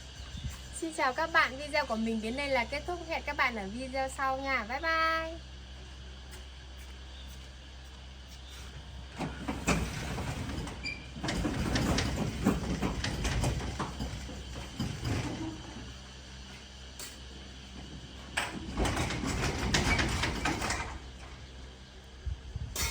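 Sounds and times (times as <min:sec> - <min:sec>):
clattering and knocking: 0:09.2 - 0:15.7, 0:18.4 - 0:21.1.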